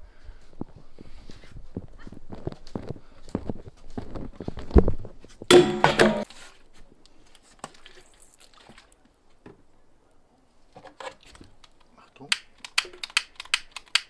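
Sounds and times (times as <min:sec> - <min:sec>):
irregular knocks: 0:05.5 - 0:06.2.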